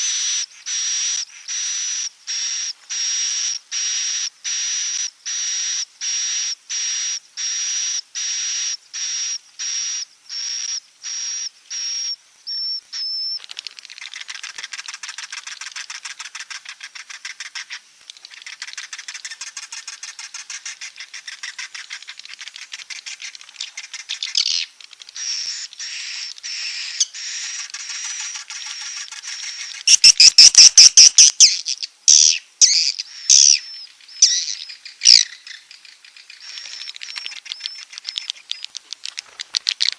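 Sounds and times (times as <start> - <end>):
swiftlet chirps and twittering: 10.4 - 39.4.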